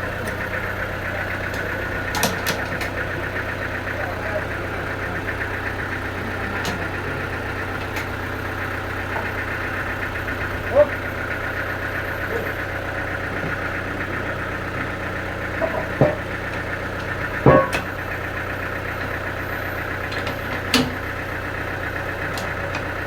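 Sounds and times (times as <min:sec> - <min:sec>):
sawmill engine running: 0:00.0 - 0:23.0
sharp knocks: 0:17.4 - 0:17.9.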